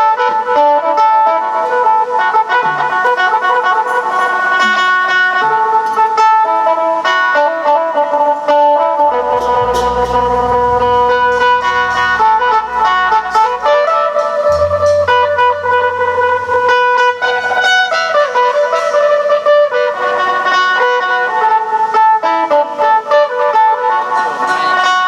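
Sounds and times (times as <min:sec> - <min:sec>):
plucked lute melody: 0:00.0 - 0:25.0
low bass tone: 0:09.1 - 0:17.6.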